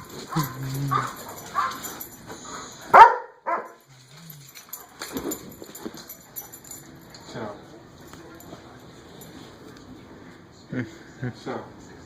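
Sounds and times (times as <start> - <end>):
dog whining: 0.1 - 2.2
dog barking: 0.3 - 1.9, 2.9 - 3.8.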